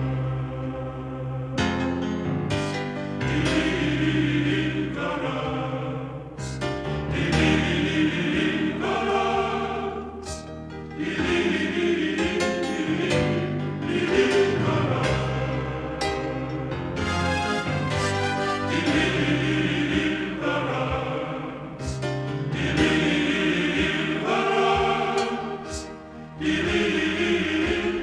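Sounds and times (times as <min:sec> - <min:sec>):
gospel choir singing: 0:00.0 - 0:28.0
instrumental accompaniment: 0:06.4 - 0:28.0.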